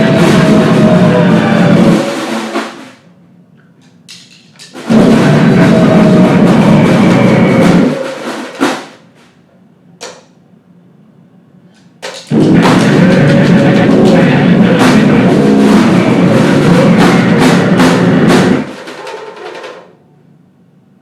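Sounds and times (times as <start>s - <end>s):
isolated sharp hits: 0.0s - 2.8s, 4.8s - 8.9s, 12.3s - 19.0s
distorted band blasts: 0.0s - 3.0s, 4.8s - 8.9s, 12.3s - 19.0s.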